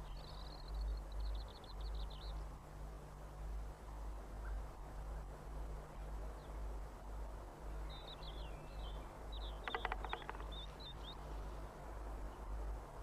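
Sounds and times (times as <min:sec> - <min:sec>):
birds chirping: 0:07.9 - 0:11.4
sharp taps: 0:09.7 - 0:10.6.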